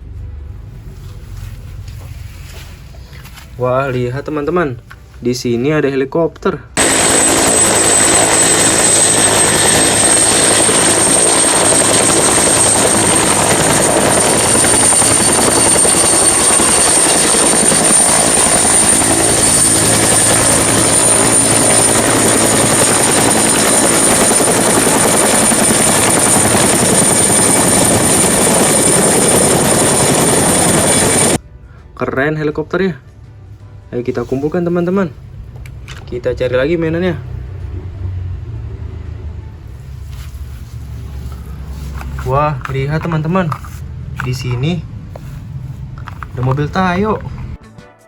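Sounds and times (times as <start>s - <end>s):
helicopter rotor and engine: 6.8s - 31.4s
thin high whine: 6.8s - 31.4s.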